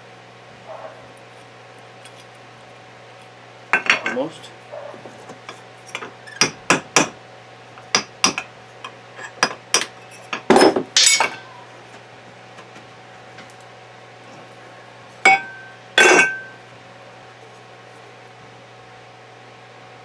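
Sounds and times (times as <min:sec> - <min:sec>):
metal clatter: 0:09.8 - 0:11.4, 0:15.3 - 0:16.5.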